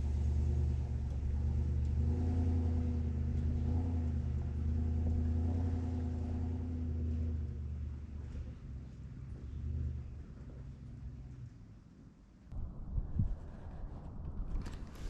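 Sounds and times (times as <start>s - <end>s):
vehicle engine running: 0.0s - 11.7s.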